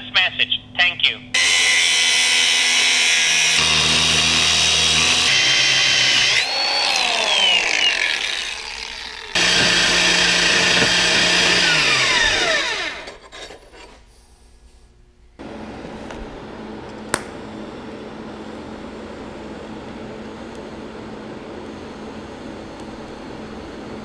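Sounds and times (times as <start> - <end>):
electric power tool whining: 1.4 - 13.3.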